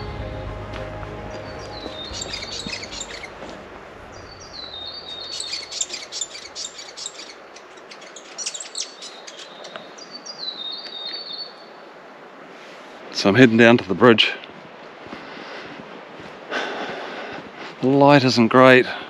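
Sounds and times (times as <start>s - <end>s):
songbird singing: 0.0s - 11.9s.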